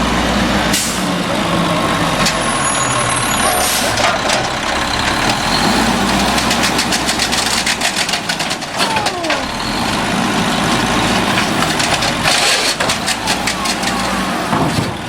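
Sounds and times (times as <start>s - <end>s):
garbage truck engine running: 0.0s - 15.0s.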